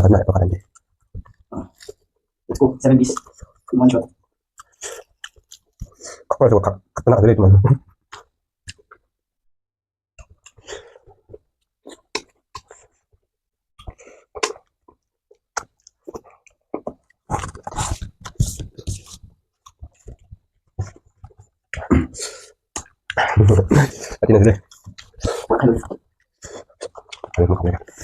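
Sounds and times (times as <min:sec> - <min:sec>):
crisp chewing crunches: 0:04.6 - 0:06.0.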